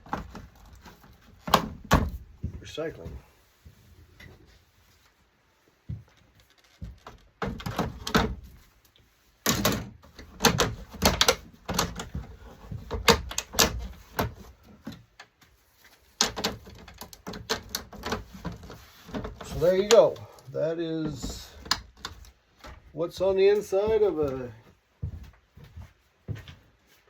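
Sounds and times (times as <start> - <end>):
monitor parts clattering: 16.1 - 20.4.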